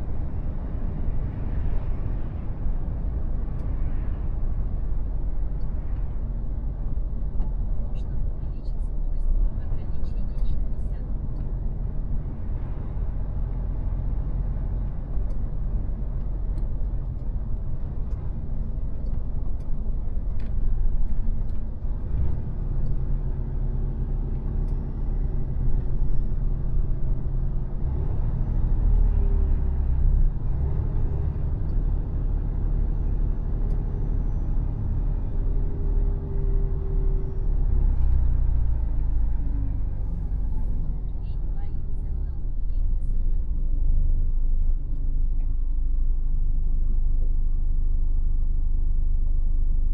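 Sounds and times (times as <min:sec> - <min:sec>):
truck diesel rumble: 0:00.0 - 0:49.9.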